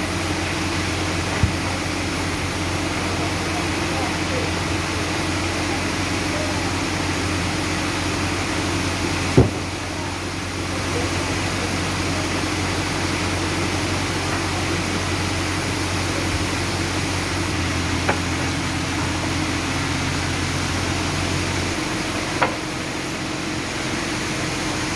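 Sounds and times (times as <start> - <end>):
sawmill machinery humming: 0.0 - 24.9
sharp knock: 9.4 - 9.7.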